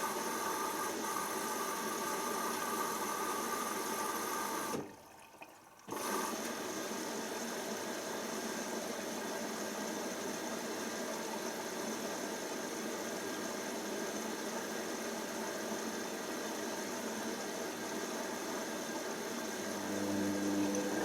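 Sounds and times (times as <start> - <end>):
washing machine motor whir: 17.9 - 21.0.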